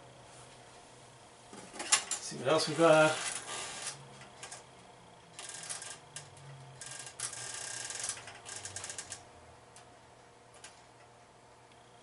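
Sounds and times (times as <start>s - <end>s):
pinball machine clicking: 5.4s - 9.2s.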